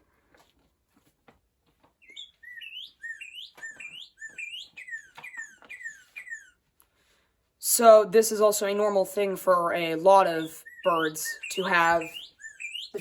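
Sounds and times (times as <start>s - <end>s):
cardinal singing whistled notes: 2.0s - 6.6s, 10.4s - 13.0s.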